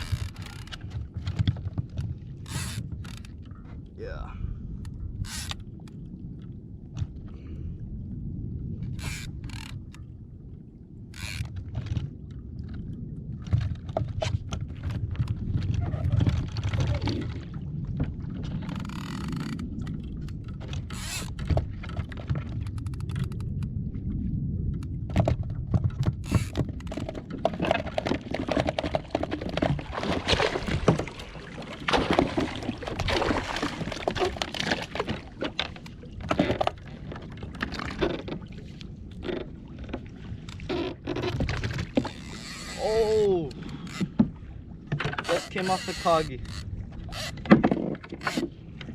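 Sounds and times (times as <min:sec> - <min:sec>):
knocks and scrapes on hull: 0:00.0 - 0:03.9, 0:11.2 - 0:24.0, 0:24.7 - 0:48.9
water splashing around kayak: 0:00.0 - 0:48.9
steady low rumble: 0:03.3 - 0:11.1.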